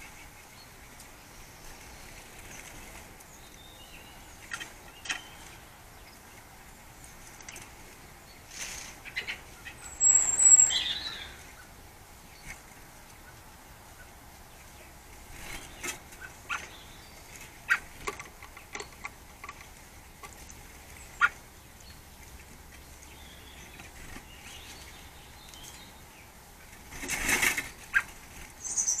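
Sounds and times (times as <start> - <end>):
birds tapping on metal mesh: 4.3 - 6.4, 15.3 - 26.0
bird wingbeats: 26.6 - 28.7.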